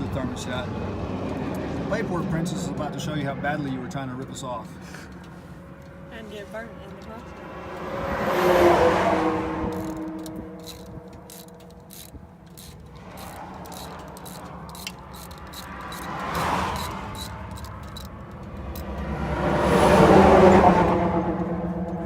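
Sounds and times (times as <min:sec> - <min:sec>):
vehicle passing: 0:00.0 - 0:22.0
socket ratchet clicking: 0:09.7 - 0:19.1.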